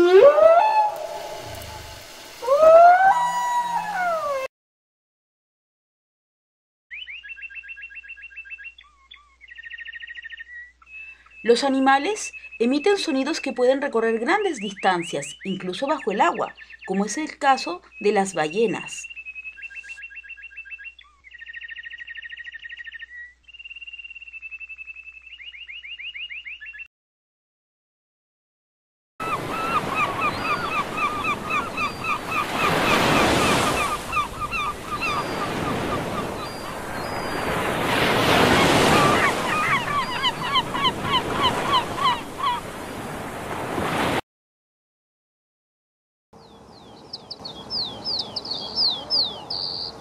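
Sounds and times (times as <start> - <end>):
gulls calling: 0.0 - 4.5, 29.2 - 43.2
high warbling bird calls: 0.0 - 4.5, 17.8 - 26.9, 29.2 - 42.7, 46.4 - 50.0
breaking surf: 29.5 - 44.2.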